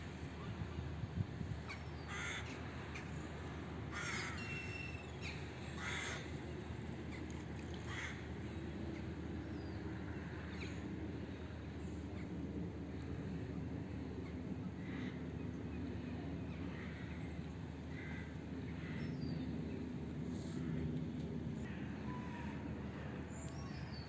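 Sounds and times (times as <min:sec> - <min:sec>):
harsh cawing bird calls: 0:01.7 - 0:03.1, 0:03.9 - 0:06.3, 0:07.9 - 0:08.2, 0:17.9 - 0:19.3
steady low rumble: 0:05.0 - 0:24.0.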